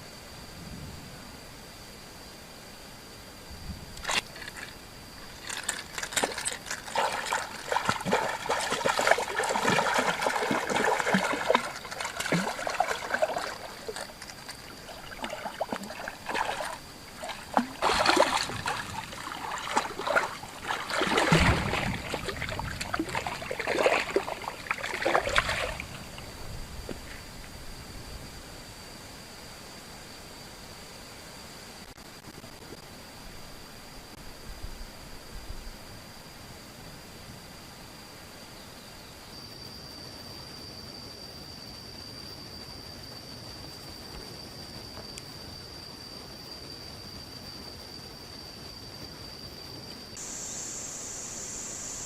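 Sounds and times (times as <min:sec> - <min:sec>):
water splashing and sloshing: 0:04.0 - 0:27.2.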